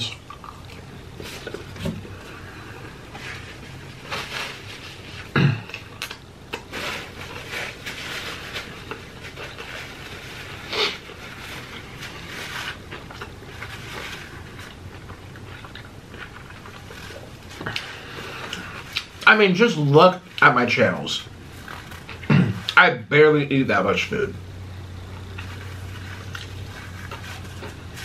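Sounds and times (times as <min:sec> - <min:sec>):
person chewing with wet mouth noises: 0:00.1 - 0:03.6, 0:10.5 - 0:19.2.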